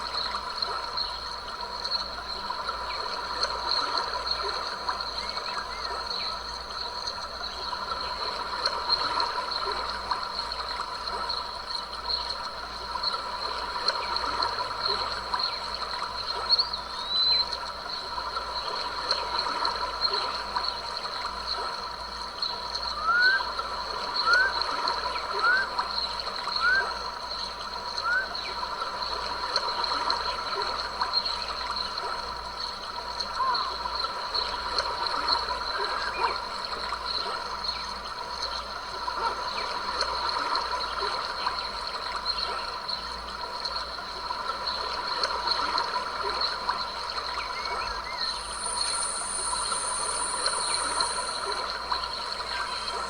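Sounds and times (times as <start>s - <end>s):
stream babbling: 44.0s - 53.0s.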